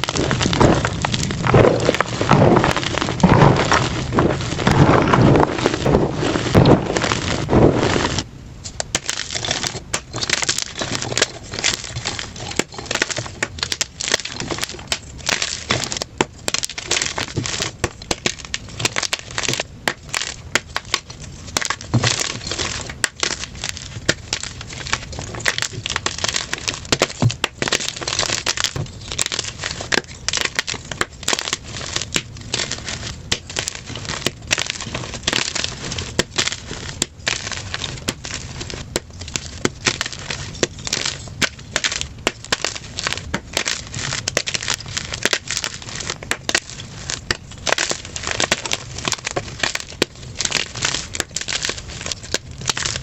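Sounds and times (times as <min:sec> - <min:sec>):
chalk crunching by hand: 0:00.0 - 0:08.3.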